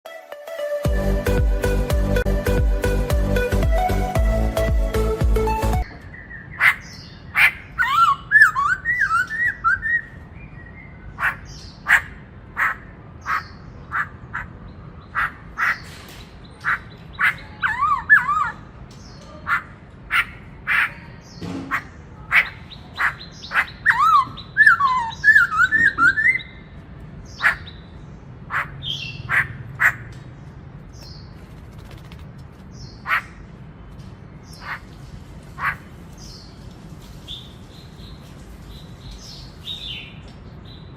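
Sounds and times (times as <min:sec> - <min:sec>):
bird warbled runs: 0:31.0 - 0:33.3.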